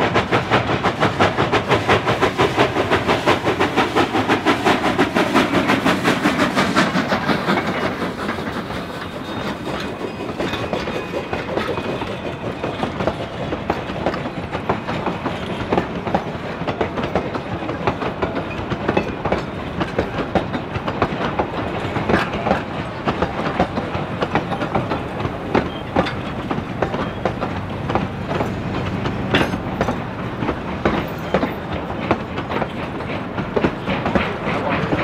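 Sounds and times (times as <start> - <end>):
train wheels clattering on rails: 0.0 - 35.0.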